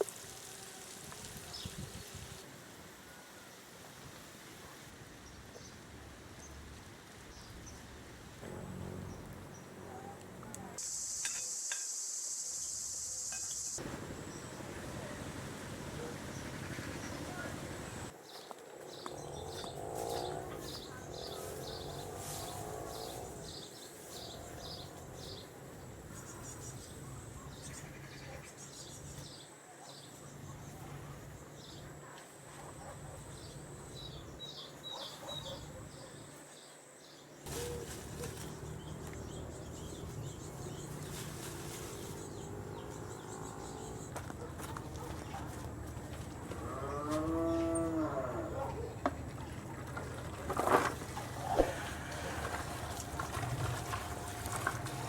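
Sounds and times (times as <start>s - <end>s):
small birds chirping: 33.3s - 45.5s
cow mooing: 46.6s - 48.8s.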